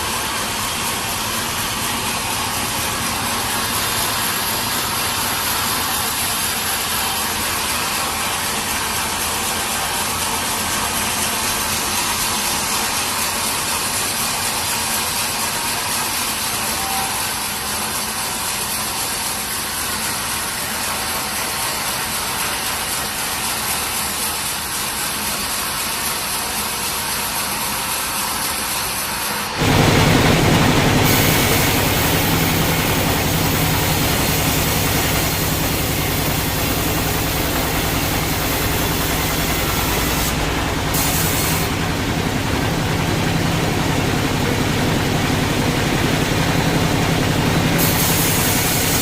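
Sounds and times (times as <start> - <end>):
sawmill machinery running: 0.0 - 49.0.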